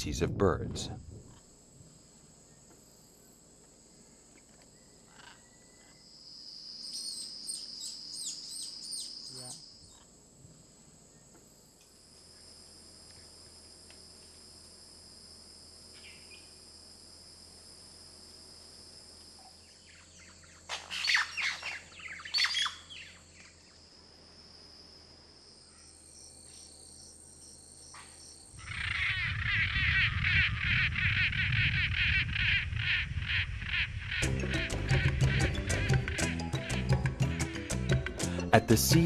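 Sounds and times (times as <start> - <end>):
high insect drone: 1.1 - 37.7
birds calling: 19.4 - 23.8, 28.0 - 38.3.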